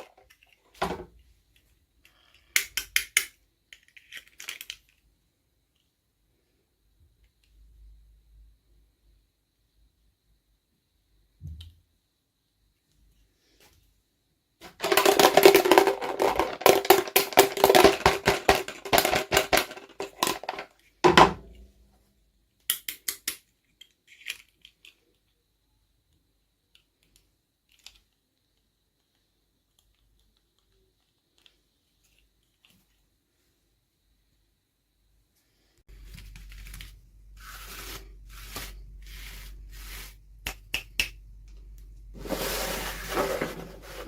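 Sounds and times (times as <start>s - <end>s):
plastic toy pieces rattling: 3.7s - 5.0s, 14.6s - 20.8s.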